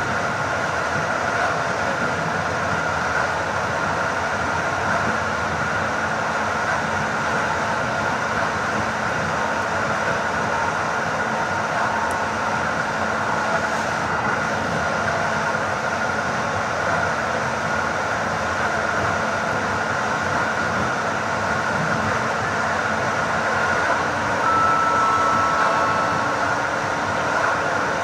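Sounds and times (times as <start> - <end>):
train running noise from inside coach: 0.0 - 28.0
high hum: 23.9 - 28.0.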